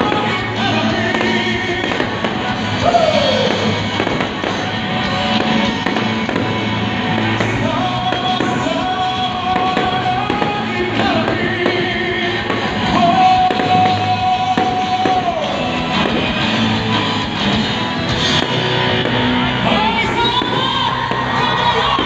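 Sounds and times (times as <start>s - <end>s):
people singing: 0.0s - 4.8s, 5.4s - 16.3s
fireworks bursting and crackling: 0.0s - 22.0s
music: 0.0s - 22.0s.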